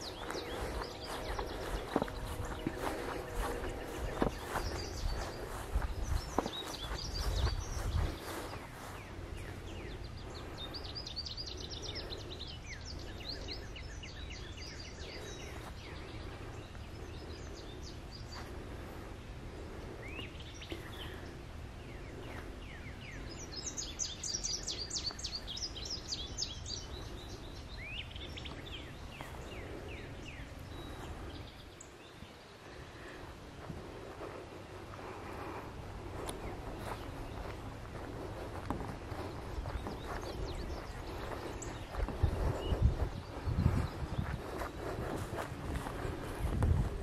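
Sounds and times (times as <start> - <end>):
songbirds singing: 0.0 - 47.0
steady low rumble: 0.0 - 47.0.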